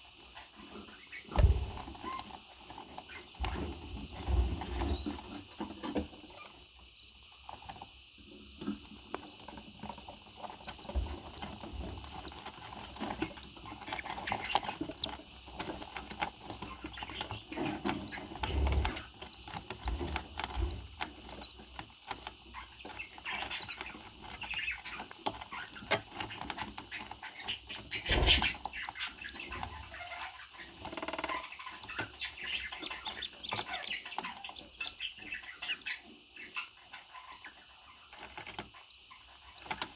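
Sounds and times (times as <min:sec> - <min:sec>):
bird chirping: 0:00.6 - 0:39.9
clicks and scratching: 0:01.3 - 0:39.9.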